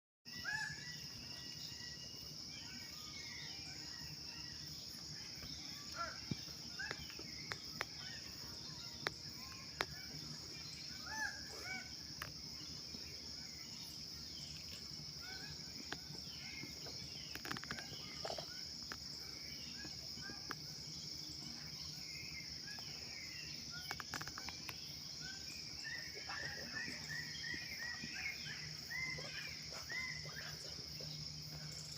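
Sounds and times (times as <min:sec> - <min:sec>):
bird chirps: 0:00.3 - 0:31.9
high insect drone: 0:00.3 - 0:31.9
sharp clicks: 0:23.8 - 0:24.8.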